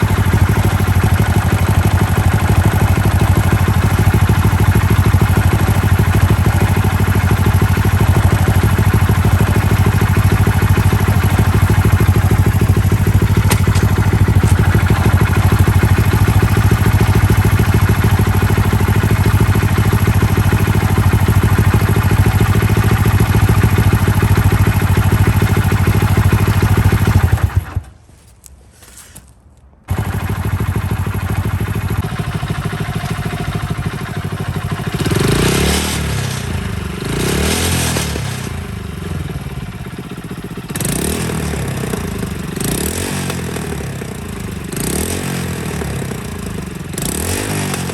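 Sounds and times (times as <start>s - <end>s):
loud engine clattering: 0.0s - 27.9s, 29.9s - 47.9s
motorcycle engine idling: 0.0s - 28.0s, 29.9s - 47.9s.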